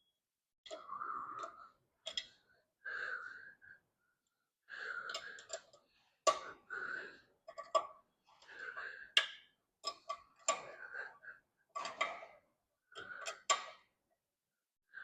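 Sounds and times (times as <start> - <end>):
man breathing hard: 2.8 - 3.9, 4.6 - 7.4.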